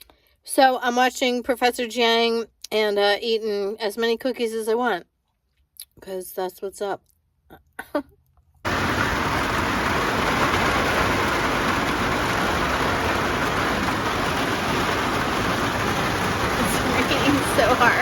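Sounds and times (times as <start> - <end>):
heavy rain: 8.7 - 18.0.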